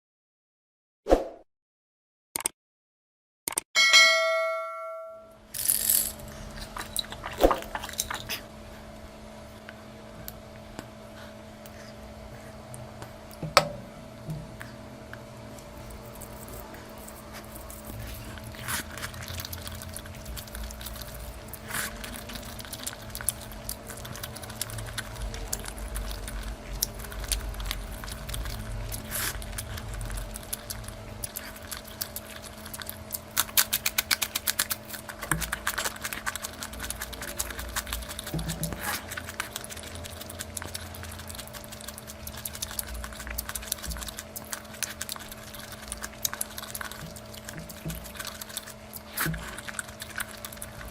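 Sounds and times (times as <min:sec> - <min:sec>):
faint steady hum: 0:03.8 - 0:50.9
chewing and mouth clicks: 0:06.2 - 0:08.5, 0:14.6 - 0:50.9.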